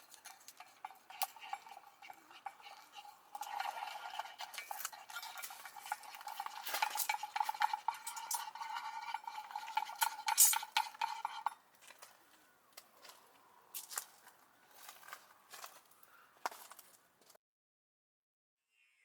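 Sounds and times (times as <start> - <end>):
utensil scraping in a pan: 0.0 - 12.0.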